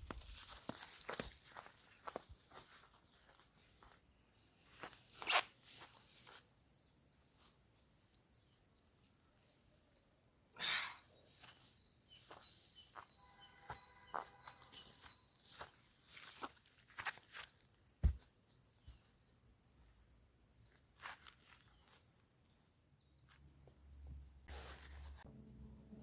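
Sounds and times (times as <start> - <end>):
faint thin ringing tones: 11.2 - 16.3.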